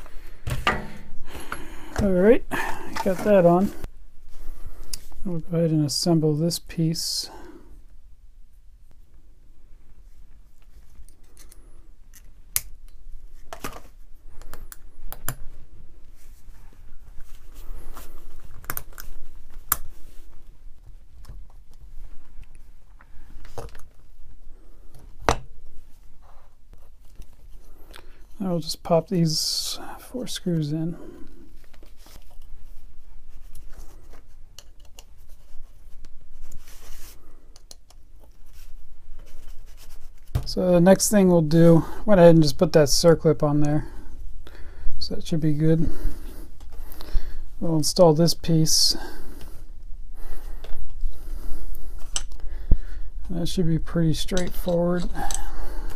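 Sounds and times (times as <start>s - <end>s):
tool parts clicking and clinking: 54.3s - 55.9s.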